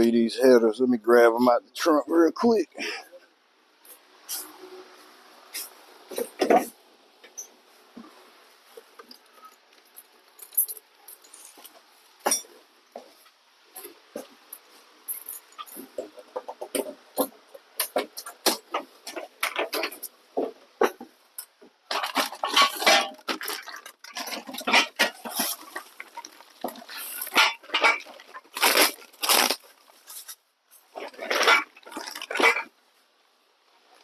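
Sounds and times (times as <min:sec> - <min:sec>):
metal tubes clattering: 0:09.3 - 0:12.6, 0:14.2 - 0:20.2, 0:21.9 - 0:32.7
packaging rustling: 0:21.9 - 0:30.4.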